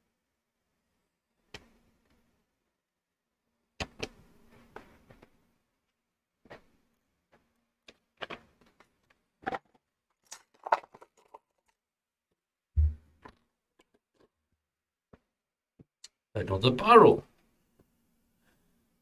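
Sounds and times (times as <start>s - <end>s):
dull thump: 12.8s - 13.0s.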